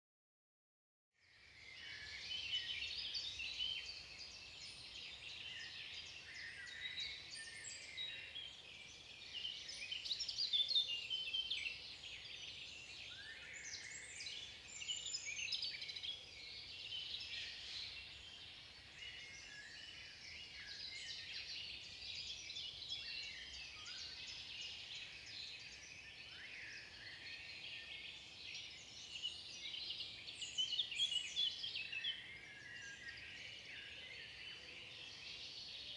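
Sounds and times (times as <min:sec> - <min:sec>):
songbirds chirping: 0:01.2 - 0:35.9.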